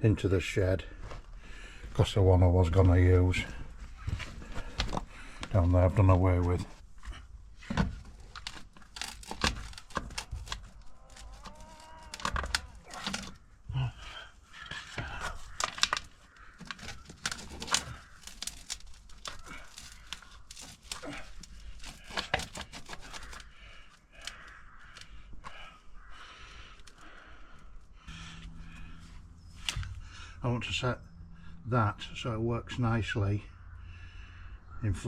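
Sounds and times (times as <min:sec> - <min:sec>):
hand digging scraping: 0:02.7 - 0:25.7
plastic fittings handled: 0:07.0 - 0:13.4, 0:14.6 - 0:23.5.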